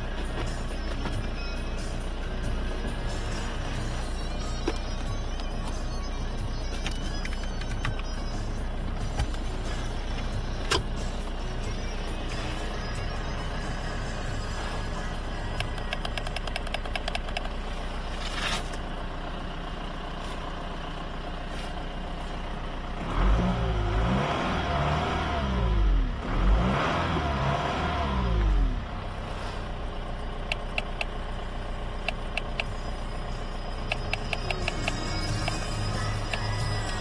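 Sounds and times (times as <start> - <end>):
motor vehicle engine: 0.0 - 37.0.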